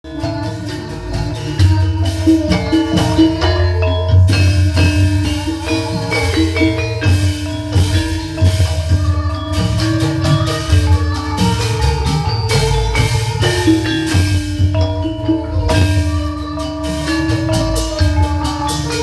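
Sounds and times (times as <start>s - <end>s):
metallophones struck in patterns: 0.0s - 19.0s.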